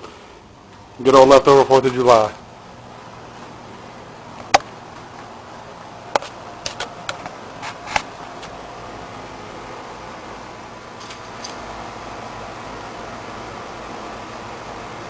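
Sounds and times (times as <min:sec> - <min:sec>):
steady low hiss: 0:00.0 - 0:15.0
sharp clicks and knocks: 0:06.1 - 0:08.6.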